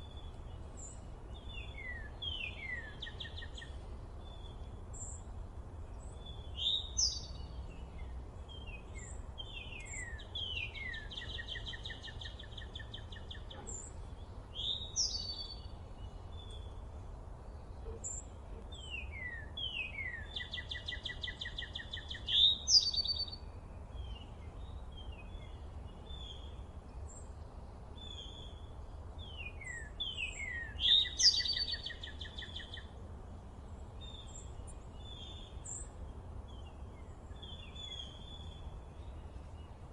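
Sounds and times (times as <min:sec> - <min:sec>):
songbird singing: 0:00.0 - 0:39.9
bird chirps: 0:05.9 - 0:16.8, 0:17.6 - 0:23.4, 0:29.2 - 0:33.0.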